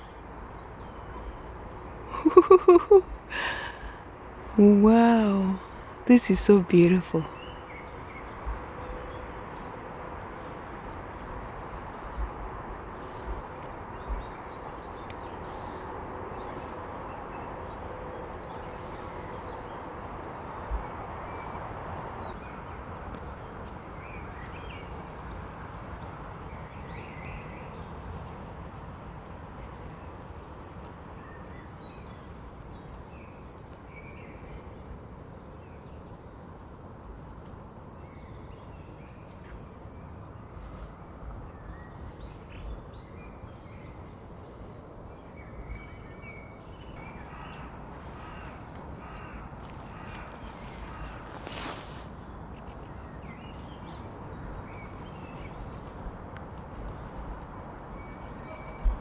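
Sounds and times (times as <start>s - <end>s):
bird calls: 1.8s - 4.5s.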